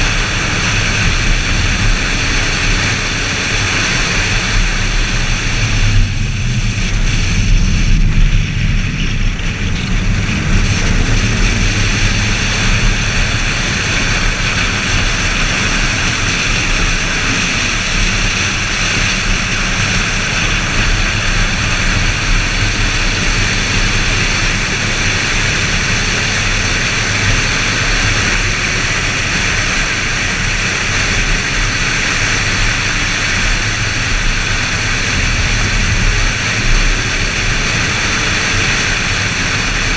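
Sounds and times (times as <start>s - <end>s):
car engine running at speed: 0.0s - 39.9s
wind noise: 0.0s - 39.9s.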